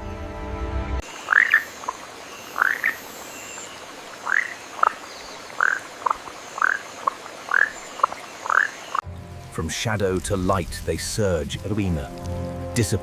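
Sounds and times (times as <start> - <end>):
frog chirping: 1.0 - 9.0.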